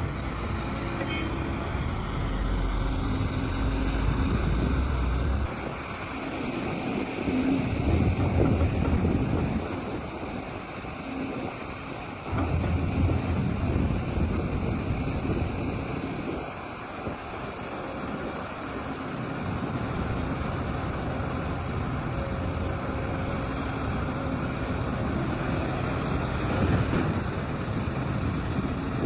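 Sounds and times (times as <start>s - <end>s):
heavy diesel machine engines: 0.0s - 29.0s
wind on microphone: 12.3s - 17.2s.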